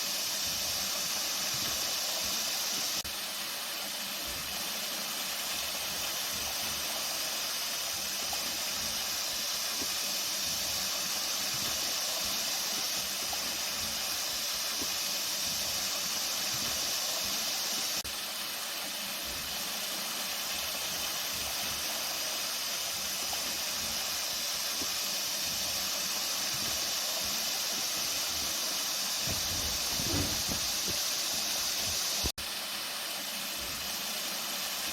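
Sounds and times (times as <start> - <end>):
water rushing: 0.0 - 34.9.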